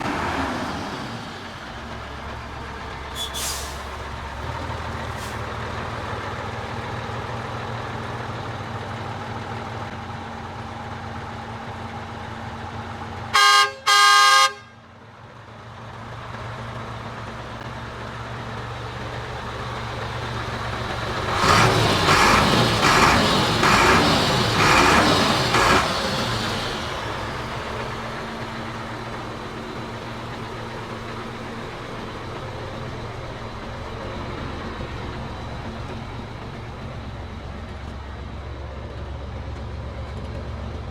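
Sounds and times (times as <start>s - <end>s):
diesel truck engine running: 0.0s - 40.9s
truck horn blasts: 13.3s - 14.9s.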